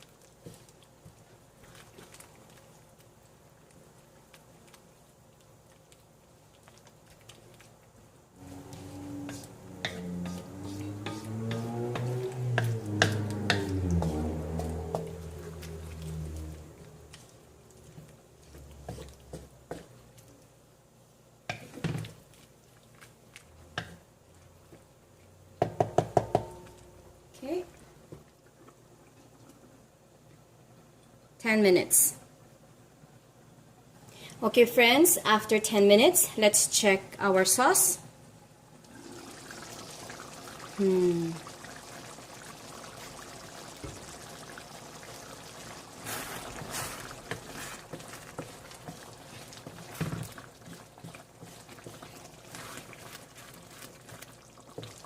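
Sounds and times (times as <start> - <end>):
sauce bubbling in a pot: 0.0 - 26.8, 38.5 - 55.0
utensil tapping on cookware: 9.2 - 13.7, 25.6 - 26.7.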